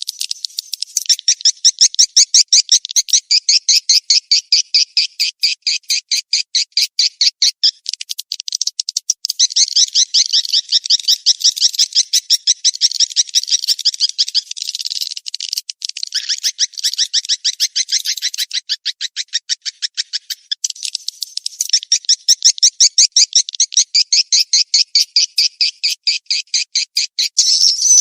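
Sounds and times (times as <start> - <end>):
swiftlet chirps: 27.4 - 28.0.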